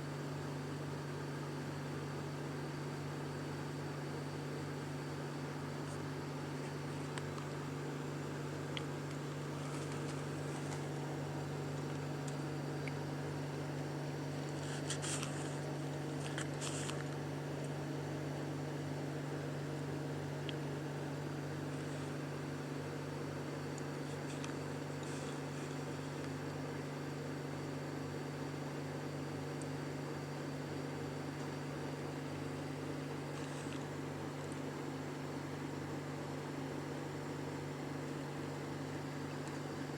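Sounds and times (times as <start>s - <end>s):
low mechanical hum: 0.0s - 39.9s
soft rustles: 9.4s - 11.1s, 14.4s - 17.2s.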